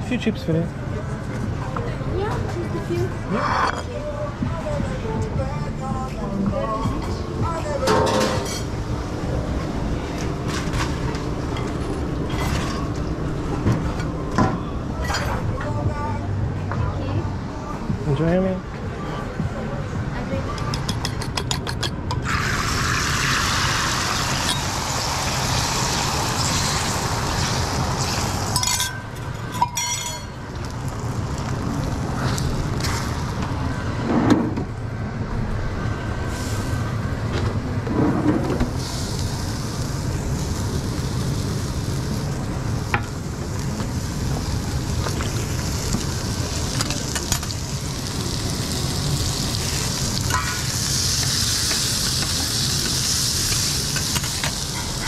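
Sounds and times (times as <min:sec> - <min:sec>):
omelette sizzling on griddle: 0:22.2 - 0:28.9, 0:38.7 - 0:55.0.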